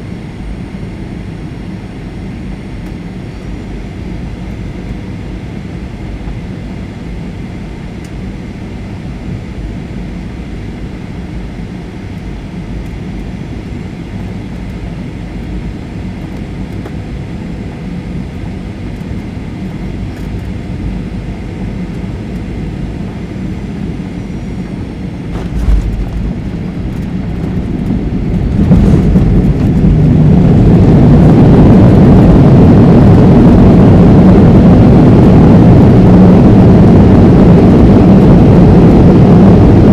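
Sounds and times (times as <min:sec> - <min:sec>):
airplane cabin noise: 0:00.0 - 0:39.9
jet engines reverse thrust roar: 0:00.0 - 0:39.9
wheels touching down thud: 0:25.3 - 0:30.8.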